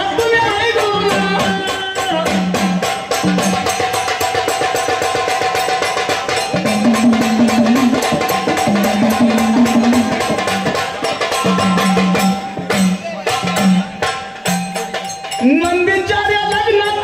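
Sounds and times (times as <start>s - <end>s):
fast dense drumming: 0.8s - 16.1s
held melodic line: 5.6s - 16.2s.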